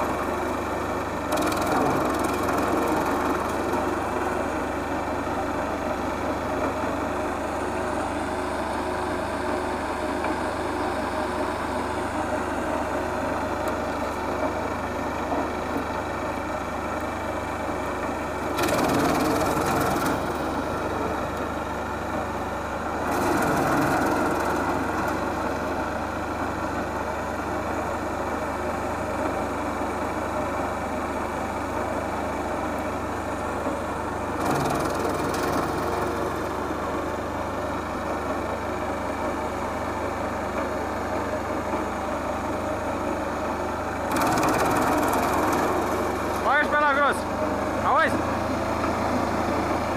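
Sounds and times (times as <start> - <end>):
wood chipper engine running: 0.0 - 49.9
branches going through chipper: 0.1 - 4.6, 12.1 - 22.2, 23.0 - 26.2, 44.0 - 49.8.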